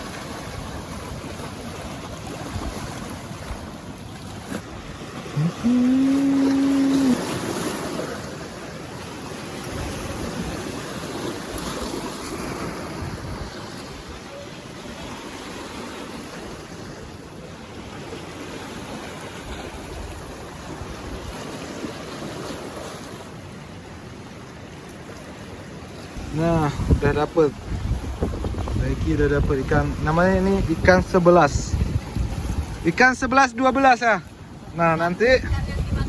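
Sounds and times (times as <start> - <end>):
water noise: 0.0 - 36.0
wind on microphone: 5.2 - 8.0, 26.2 - 32.9, 35.3 - 36.0.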